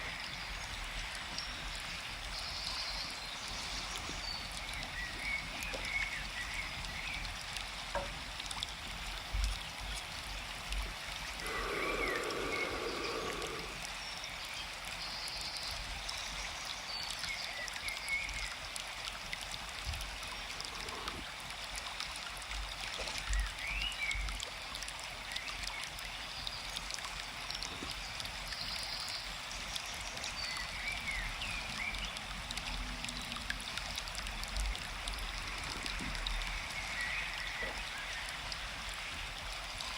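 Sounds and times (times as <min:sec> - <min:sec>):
small birds chirping: 0:00.0 - 0:07.6, 0:09.3 - 0:18.8, 0:22.8 - 0:33.9
stream water flowing: 0:00.0 - 0:39.9.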